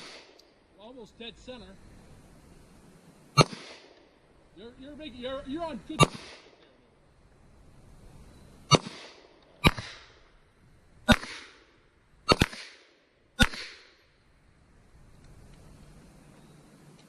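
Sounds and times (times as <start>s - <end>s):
gunshots with echo: 0.0s - 0.4s, 3.4s - 4.0s, 6.0s - 6.6s, 8.7s - 10.1s, 11.1s - 11.6s, 12.3s - 13.9s.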